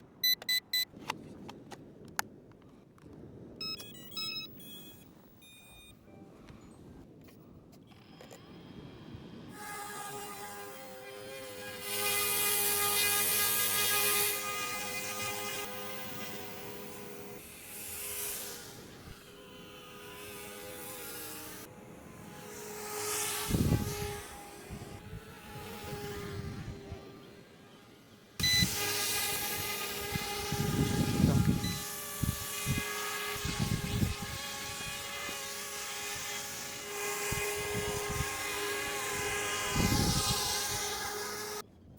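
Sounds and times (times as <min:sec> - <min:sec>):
high electronic beeps: 0:00.2 - 0:00.8, 0:03.6 - 0:06.0
stepped tone sequences: 0:00.2 - 0:00.9, 0:03.6 - 0:06.1
rc helicopter motor whine: 0:07.9 - 0:41.6.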